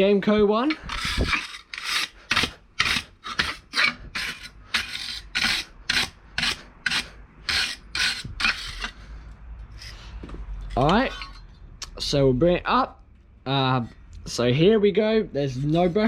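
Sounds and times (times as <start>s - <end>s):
wire brush scrubbing steel: 0.7s - 9.0s.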